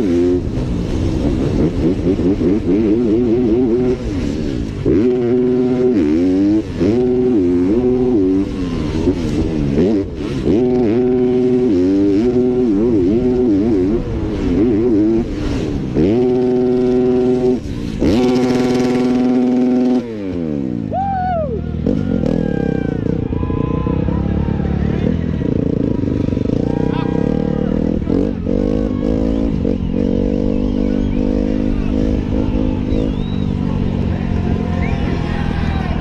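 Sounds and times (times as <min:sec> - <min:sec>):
dirt bike engine revving: 0:00.0 - 0:20.9, 0:21.5 - 0:36.0.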